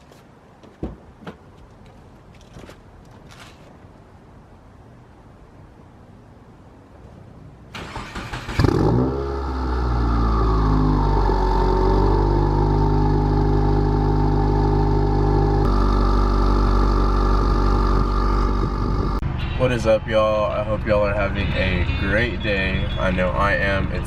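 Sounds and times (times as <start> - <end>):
car engine starting and idling: 7.6 - 19.2.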